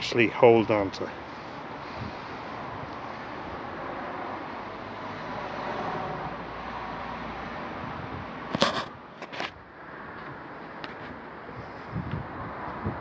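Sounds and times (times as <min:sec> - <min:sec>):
street traffic noise: 0:00.0 - 0:13.0
vehicle passing: 0:01.1 - 0:08.5
sharp click: 0:08.5 - 0:09.4.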